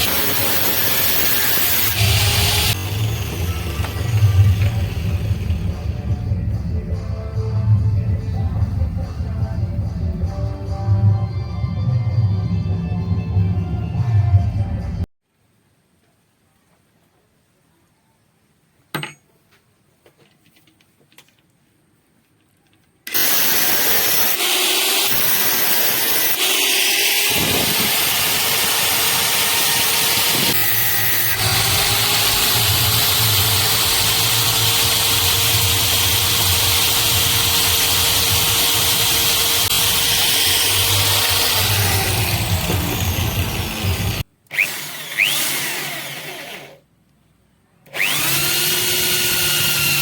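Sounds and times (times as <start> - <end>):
electric drill running: 0.0 - 6.0, 23.1 - 46.8, 47.9 - 50.0.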